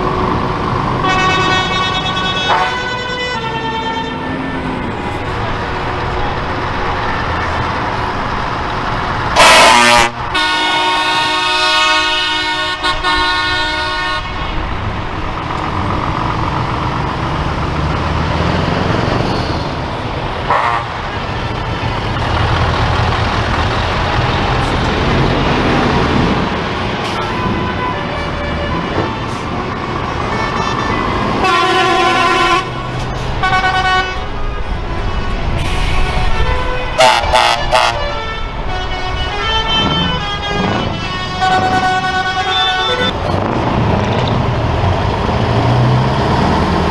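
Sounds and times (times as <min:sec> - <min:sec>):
diesel trucks driving past: 0:00.0 - 0:46.9
truck air horns: 0:00.9 - 0:06.5, 0:07.9 - 0:14.8, 0:18.4 - 0:43.3.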